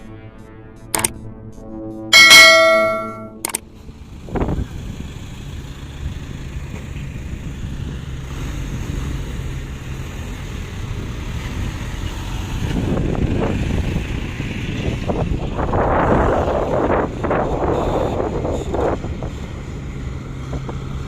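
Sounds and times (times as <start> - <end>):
truck engine rumbling: 0.0 - 21.0
wind buffeting microphone: 4.1 - 5.3, 10.9 - 21.0.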